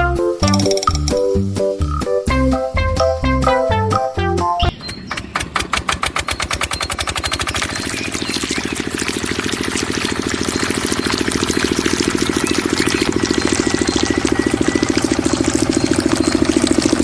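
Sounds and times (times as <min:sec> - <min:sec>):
diesel water pump engine chugging: 0:04.7 - 0:17.0.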